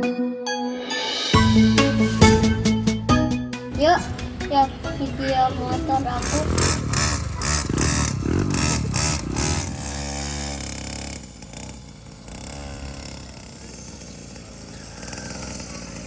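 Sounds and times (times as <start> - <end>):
motorbike engine running: 3.7 - 16.0.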